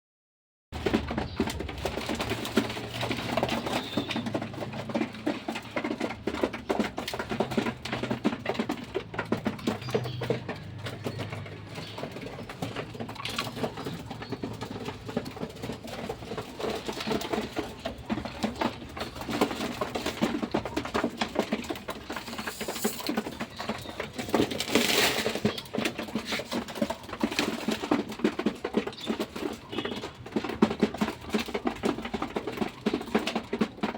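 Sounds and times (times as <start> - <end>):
pigeons pecking and stepping: 0.8 - 33.9
pigeons cooing: 0.9 - 33.9.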